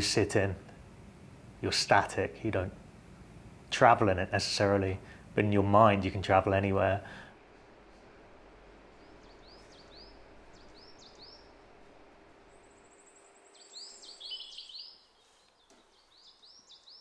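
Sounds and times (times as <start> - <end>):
small birds chirping: 12.7 - 17.0.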